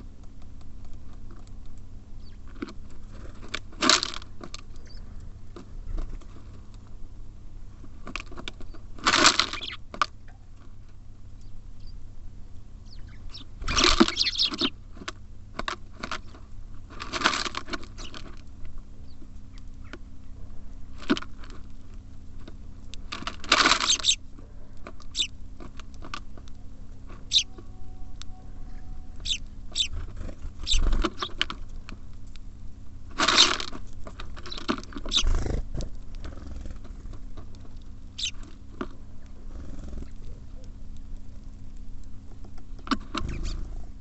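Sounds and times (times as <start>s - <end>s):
wings rustling and fluttering: 0.0s - 7.0s, 7.7s - 44.0s
birds pecking at seed: 0.0s - 44.0s.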